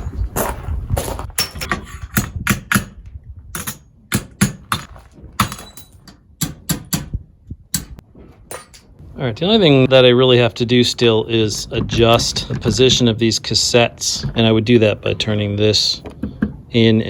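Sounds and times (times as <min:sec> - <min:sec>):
metal tools clicking and clinking: 0:01.4 - 0:02.8, 0:03.6 - 0:03.9, 0:04.8 - 0:06.6, 0:07.8 - 0:08.9.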